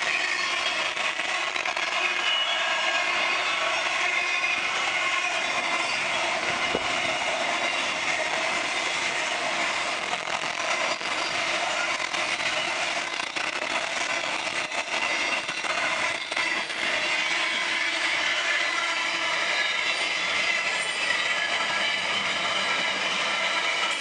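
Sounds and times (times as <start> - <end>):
freight train rumbling past: 0.0 - 24.0
wheels clicking over rail joints: 3.6 - 18.9.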